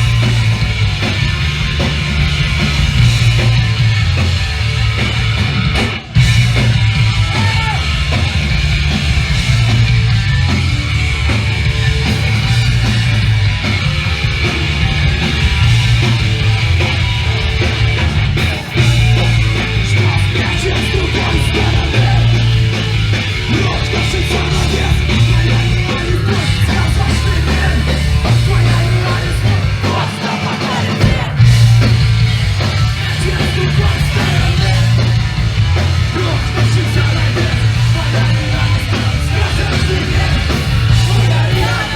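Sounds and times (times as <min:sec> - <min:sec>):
punk band playing: 0:00.0 - 0:41.9
yelled vocals: 0:00.0 - 0:41.9.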